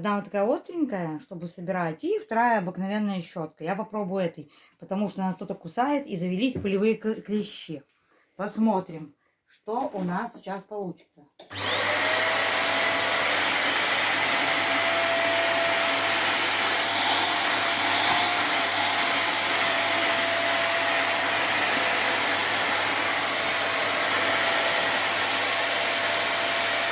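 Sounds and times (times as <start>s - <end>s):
upright vacuum cleaner running: 11.4s - 26.9s.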